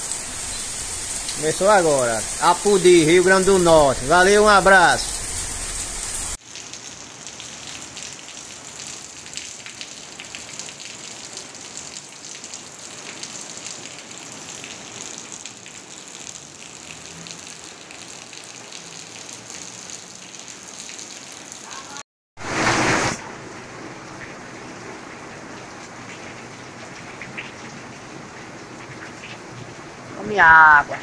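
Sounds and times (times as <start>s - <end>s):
heavy rain hissing: 0.0s - 6.4s, 21.6s - 24.1s
rainwater splashing off roof: 0.0s - 30.9s
rain pattering: 0.0s - 31.0s.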